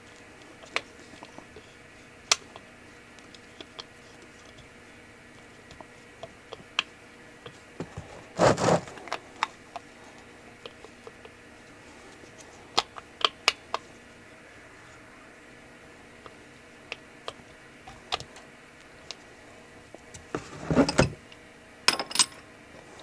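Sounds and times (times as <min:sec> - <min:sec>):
short scraping rustle: 0:07.9 - 0:09.1.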